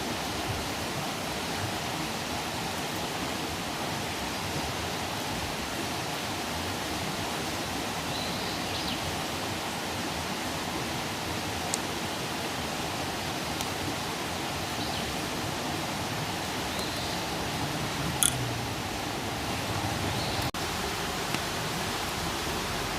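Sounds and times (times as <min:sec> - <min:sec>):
campfire hissing and popping: 0:09.6 - 0:18.9, 0:20.3 - 0:22.9.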